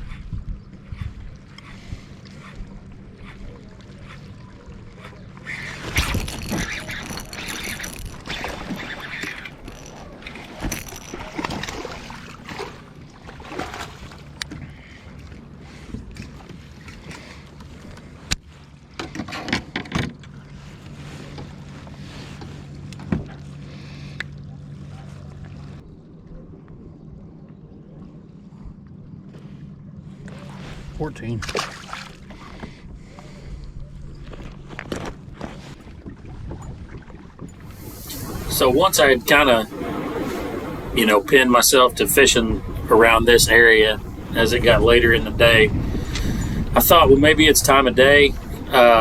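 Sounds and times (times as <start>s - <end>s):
wind noise: 0.0s - 3.4s, 5.6s - 12.7s, 36.0s - 49.0s
water noise: 0.0s - 19.0s, 20.2s - 49.0s
gear knocks and clicks: 5.8s - 12.4s.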